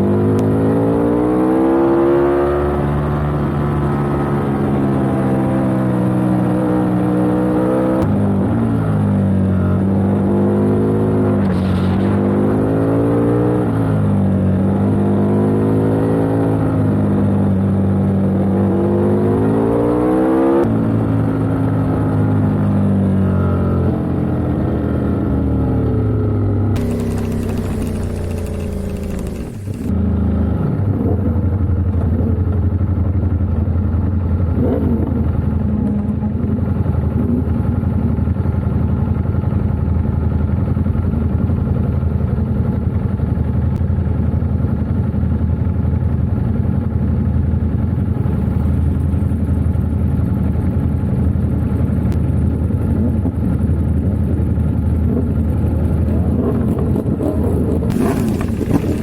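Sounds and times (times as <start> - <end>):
motorbike engine racing: 26.8 - 29.9, 57.9 - 59.0.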